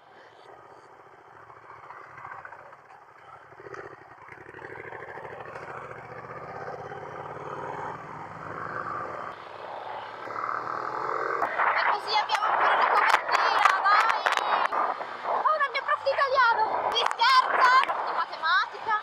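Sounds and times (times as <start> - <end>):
rushing wind: 0.0 - 19.0
motorcycle engine running: 0.4 - 11.4.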